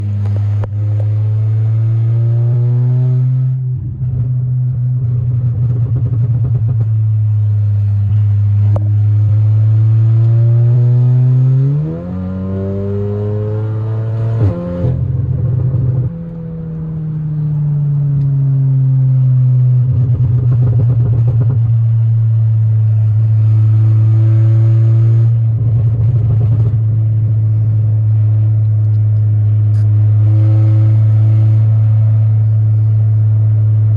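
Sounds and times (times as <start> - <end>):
car engine accelerating: 0.0 - 33.9.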